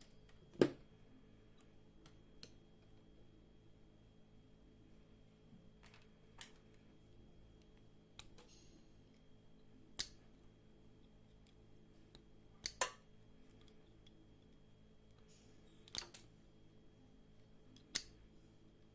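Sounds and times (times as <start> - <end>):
faint steady hum: 0.0 - 18.9
clicks and taps of small objects: 12.2 - 13.0.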